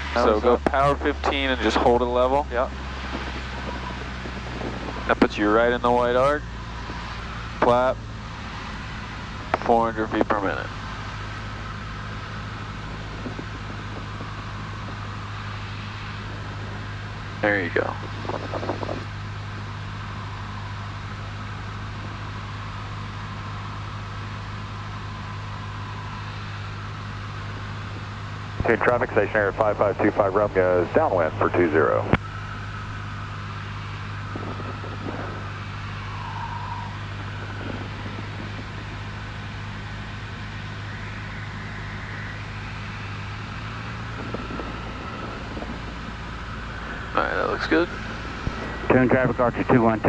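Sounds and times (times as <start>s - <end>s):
light aircraft engine cabin drone: 0.0s - 50.0s.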